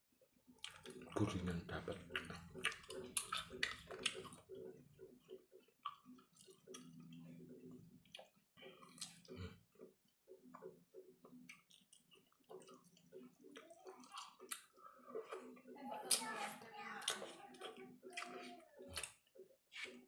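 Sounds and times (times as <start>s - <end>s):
person chewing chicken: 0.5s - 20.0s
wet mouth clicks and smacks: 2.1s - 4.4s, 8.1s - 9.4s, 11.5s - 15.4s, 17.0s - 20.0s.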